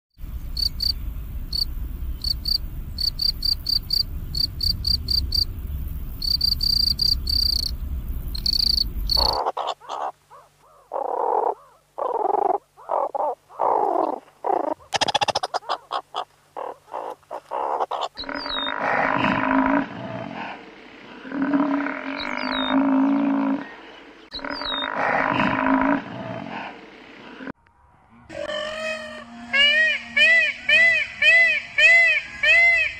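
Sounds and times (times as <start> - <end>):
cricket chirping: 0.3 - 9.7
meerkats chirping: 8.4 - 18.7
pitched animal calls: 8.4 - 23.7, 24.3 - 27.5.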